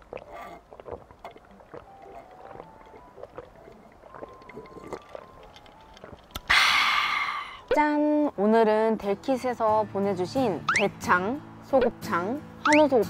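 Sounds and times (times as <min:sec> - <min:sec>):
close chewing and mouth sounds: 0:00.0 - 0:06.5
faint simple melody: 0:01.6 - 0:06.3.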